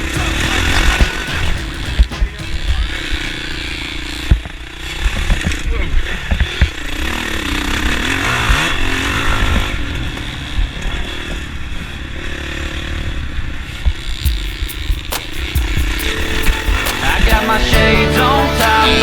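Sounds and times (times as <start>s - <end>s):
dirt bike engine: 0.0s - 19.0s.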